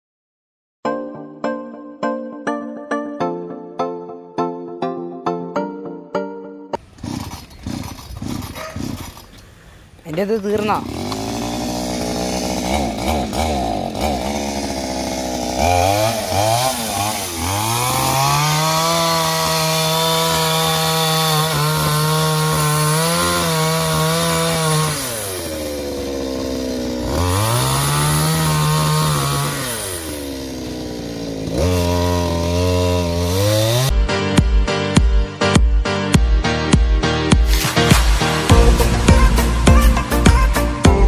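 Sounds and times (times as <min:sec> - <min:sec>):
chainsaw cutting palm trunk: 0:06.8 - 0:33.9, 0:37.4 - 0:41.0.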